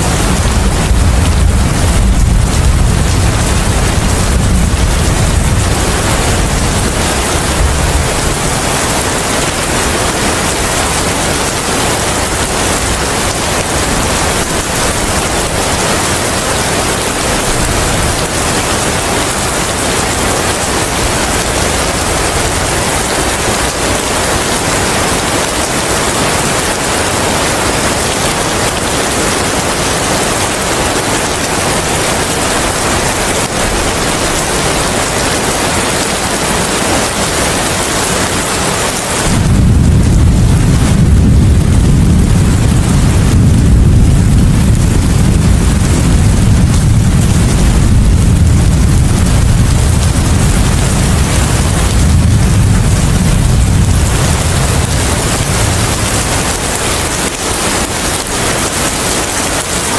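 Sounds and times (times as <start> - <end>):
low rumble: 0.0 - 10.6, 39.3 - 58.3
dense rain: 0.0 - 59.9.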